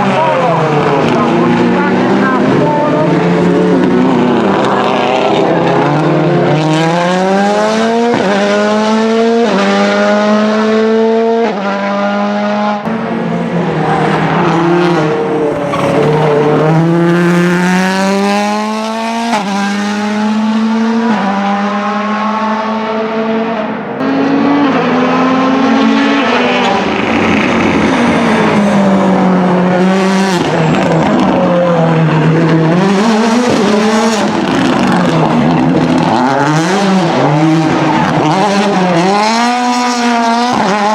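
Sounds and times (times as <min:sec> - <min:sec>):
rally car engine accelerating: 0:00.0 - 0:40.9.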